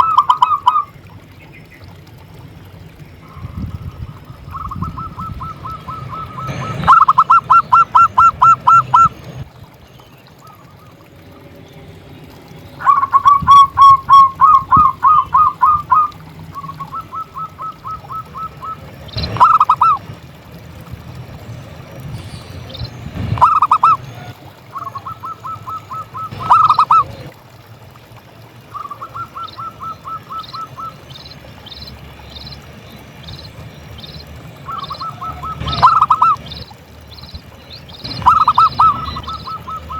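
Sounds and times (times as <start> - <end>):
dove cooing: 3.4 - 9.1, 12.8 - 20.0, 23.2 - 27.3, 28.7 - 31.9, 34.0 - 36.8, 37.8 - 39.9.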